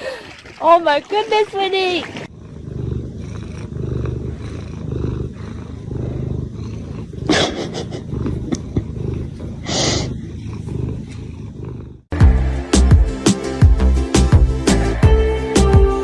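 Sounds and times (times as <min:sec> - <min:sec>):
cat purring: 0:02.2 - 0:12.2.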